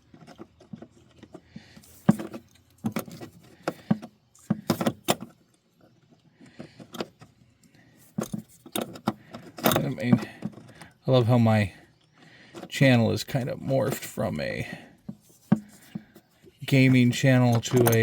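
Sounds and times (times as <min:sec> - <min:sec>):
metal tools clinking: 0:16.6 - 0:18.0.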